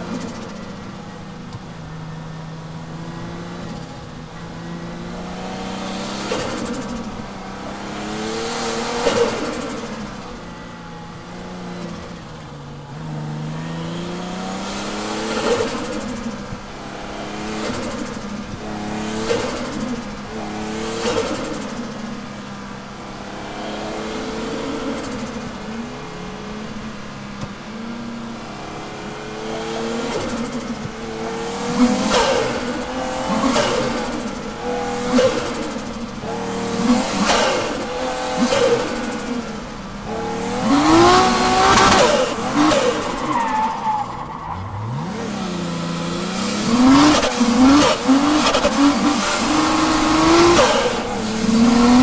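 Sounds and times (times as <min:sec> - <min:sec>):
engine revving: 0:02.8 - 0:10.4, 0:11.4 - 0:22.0, 0:28.4 - 0:52.0
tyre squeal: 0:40.7 - 0:45.0, 0:46.8 - 0:52.0.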